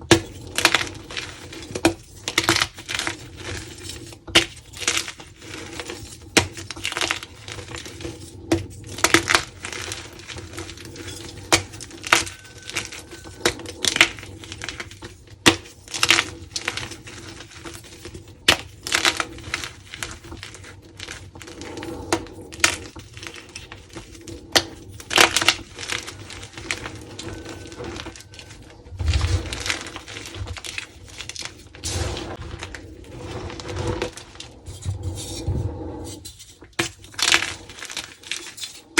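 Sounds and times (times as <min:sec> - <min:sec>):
chalk crunching and crackling: 0:00.0 - 0:38.9
low thuds: 0:28.9 - 0:29.9.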